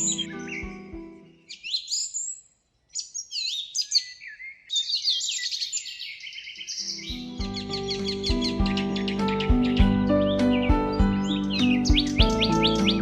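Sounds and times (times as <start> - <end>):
soft background music: 0.0 - 1.5, 6.8 - 13.0
songbirds chirping and whistling: 0.0 - 13.0.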